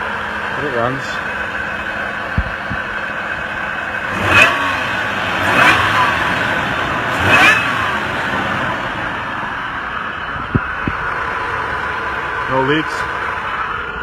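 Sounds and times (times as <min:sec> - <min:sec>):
truck engine idling: 0:00.0 - 0:14.0
engine revving with supercharger whine: 0:02.2 - 0:14.0.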